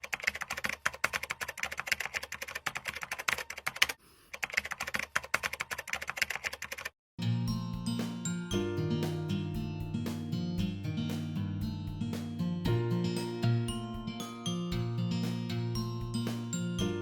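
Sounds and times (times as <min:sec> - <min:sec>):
computer keyboard typing: 0:00.0 - 0:07.0
plucked guitar music: 0:07.2 - 0:17.0.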